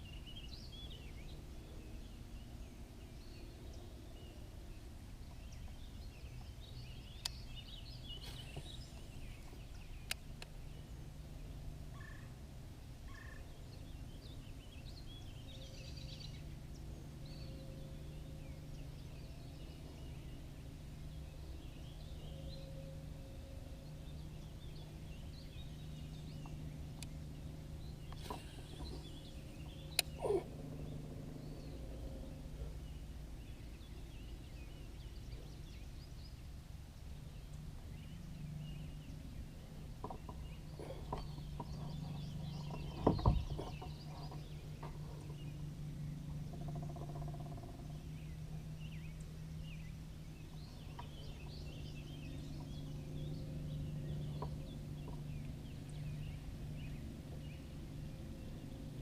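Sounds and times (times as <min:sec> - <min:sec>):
steady low hum: 0:00.0 - 0:59.0
faint bird calls: 0:11.9 - 0:12.4, 0:13.1 - 0:13.6, 0:28.0 - 0:33.7, 0:40.0 - 0:45.6.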